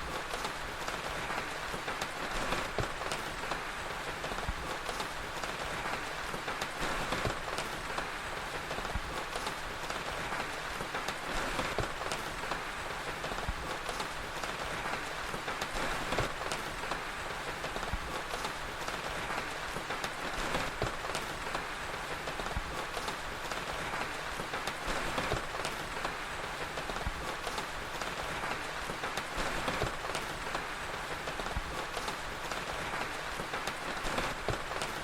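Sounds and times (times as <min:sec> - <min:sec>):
steady rain: 0:00.0 - 0:35.0
wood fire crackling: 0:00.0 - 0:35.0.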